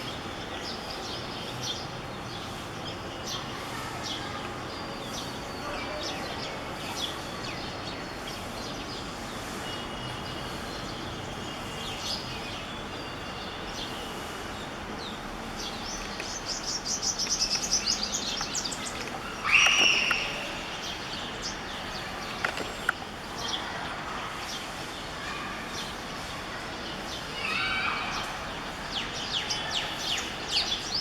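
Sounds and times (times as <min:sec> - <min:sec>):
outdoor background noise: 0:00.0 - 0:31.0
birds chirping and calling: 0:15.0 - 0:23.6.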